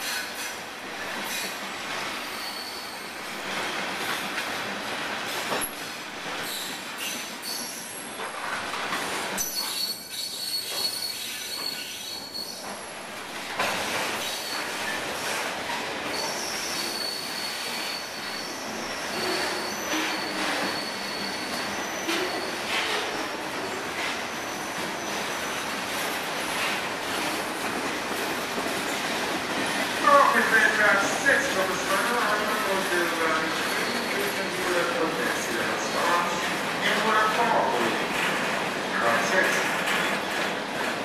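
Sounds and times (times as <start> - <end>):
high wheel squeals: 2.3 - 3.2, 9.4 - 12.8, 16.1 - 25.6.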